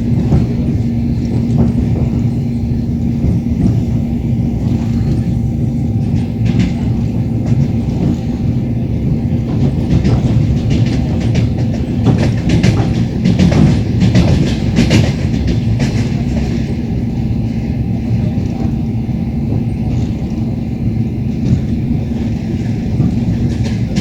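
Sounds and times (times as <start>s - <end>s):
train rumble and hum: 0.0s - 24.0s
wheels clicking over rail joints: 0.0s - 24.0s.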